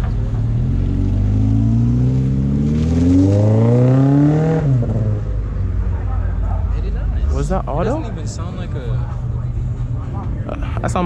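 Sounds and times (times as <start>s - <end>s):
car engine accelerating hard: 0.0s - 6.1s.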